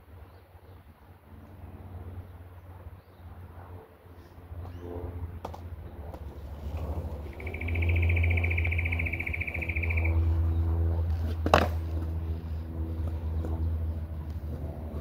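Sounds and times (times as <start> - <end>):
high buzzing insect trill: 7.3 - 10.3
skateboard wheels rolling: 11.1 - 13.2
skateboard clacking on ground: 11.2 - 12.1.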